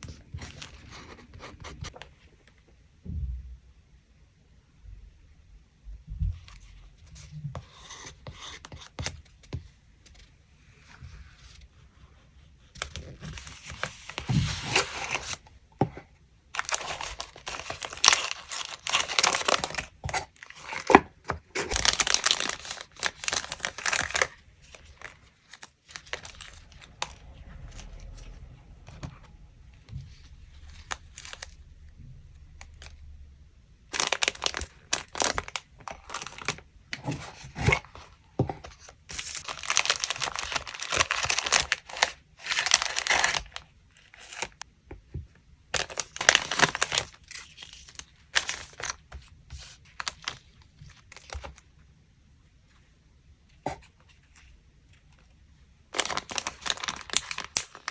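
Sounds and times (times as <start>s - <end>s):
paper tearing and crinkling: 16.6s - 29.1s, 30.1s - 31.7s, 33.9s - 38.0s, 38.8s - 44.6s, 56.0s - 57.9s.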